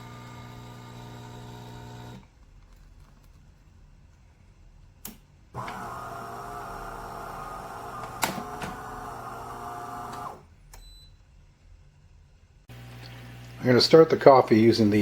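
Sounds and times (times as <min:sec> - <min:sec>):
espresso machine pump running: 0:00.0 - 0:02.2, 0:05.6 - 0:10.4, 0:12.7 - 0:14.6.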